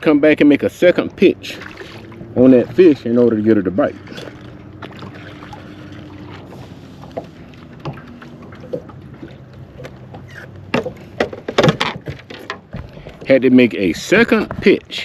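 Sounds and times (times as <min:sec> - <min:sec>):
knocks and taps on a boat: 0:07.0 - 0:13.3, 0:14.2 - 0:14.8.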